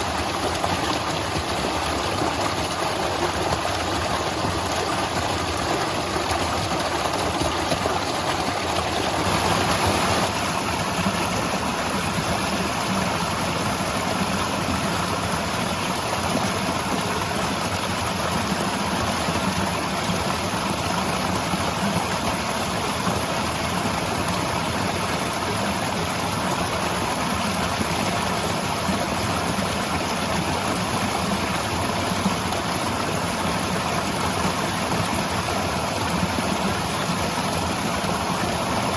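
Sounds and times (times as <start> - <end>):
waterfall rushing: 6.0 - 14.7.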